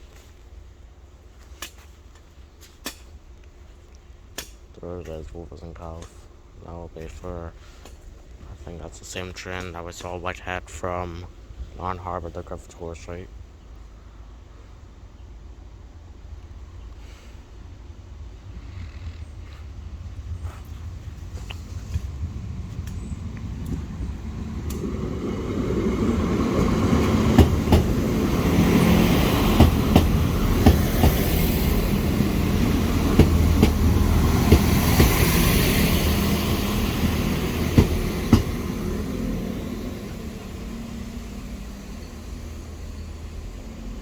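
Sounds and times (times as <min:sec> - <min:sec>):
passenger train rumble: 0:00.0 - 0:44.0
wheels clicking over rail joints: 0:19.0 - 0:44.0.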